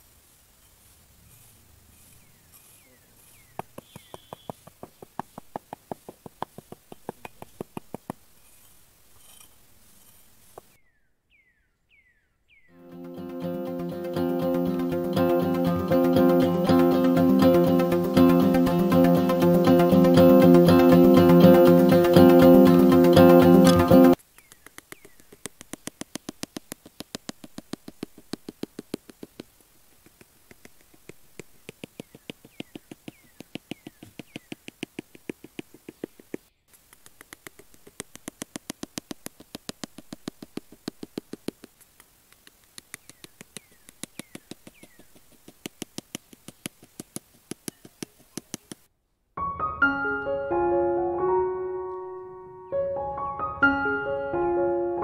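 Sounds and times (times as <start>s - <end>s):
faint falling chirps: 0.6s - 5.5s
rapid sharp clicking: 3.5s - 8.3s, 13.2s - 48.9s
piano music: 12.8s - 24.2s, 49.4s - 55.0s.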